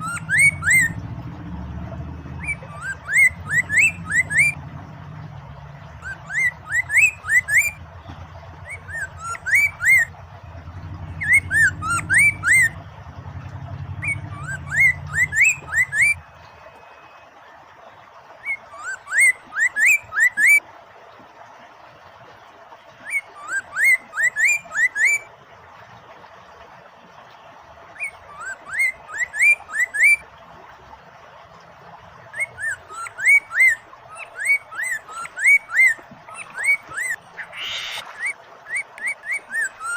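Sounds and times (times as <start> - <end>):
bird singing whistled notes: 0.0 - 1.0, 2.4 - 4.6, 6.0 - 7.8, 8.6 - 10.1, 11.1 - 12.8, 14.0 - 17.2, 23.1 - 25.3, 32.3 - 39.9
low hum: 0.0 - 17.2
running water: 0.0 - 39.9.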